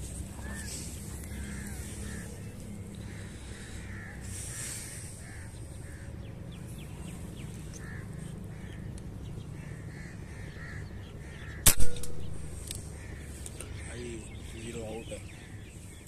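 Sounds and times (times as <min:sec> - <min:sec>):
birds calling: 0:00.0 - 0:16.0.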